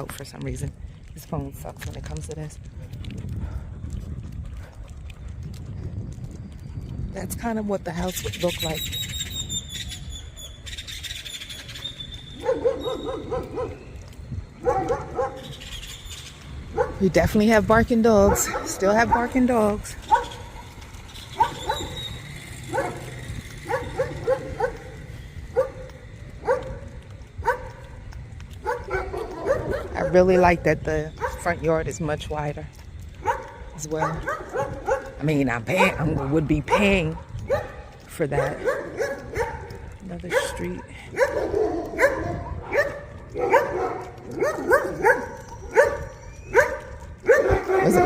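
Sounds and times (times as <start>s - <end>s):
dogs barking: 12.3s - 17.2s, 18.1s - 30.4s, 31.1s - 31.6s, 33.0s - 48.0s.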